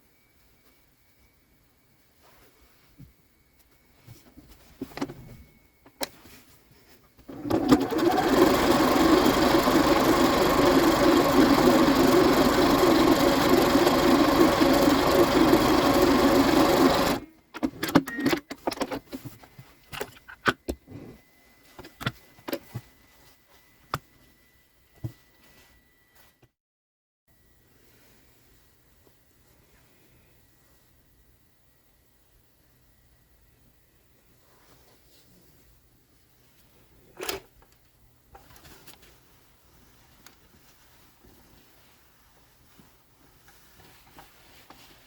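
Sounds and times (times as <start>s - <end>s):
electric sewing machine running: 7.3s - 17.2s.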